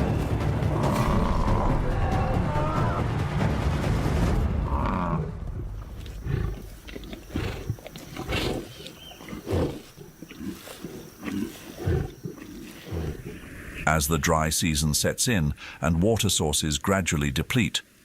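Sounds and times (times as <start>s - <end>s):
lions growling and snarling: 0.7s - 1.9s, 4.6s - 13.9s.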